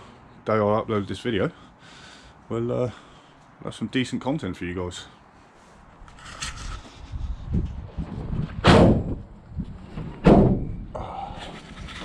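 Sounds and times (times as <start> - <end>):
van doors slamming: 8.6 - 9.3, 10.0 - 10.9.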